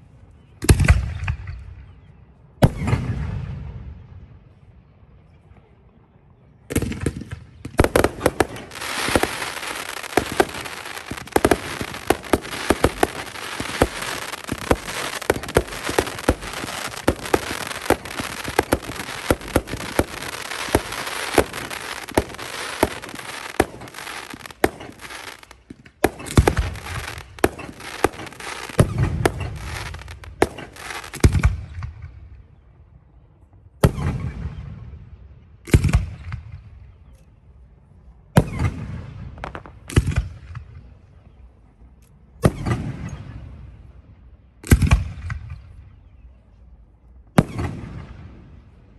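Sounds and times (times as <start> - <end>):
fireworks crackling and banging: 6.7 - 32.1, 38.4 - 40.7.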